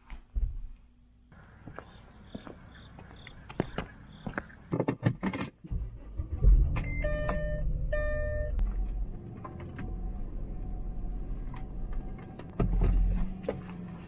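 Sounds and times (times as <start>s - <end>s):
car engine starting and idling: 5.6s - 14.0s
electronic warning chimes: 6.8s - 8.6s.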